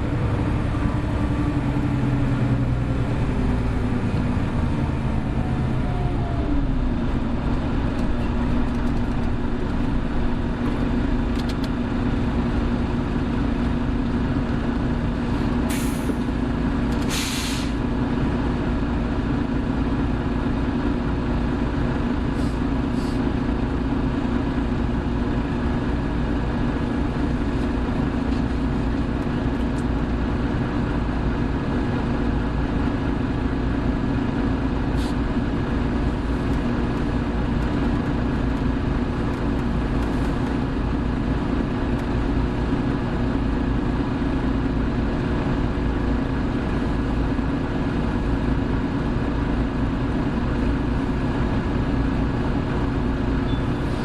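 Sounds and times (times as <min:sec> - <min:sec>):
bus engine and road drone: 0:00.0 - 0:54.0.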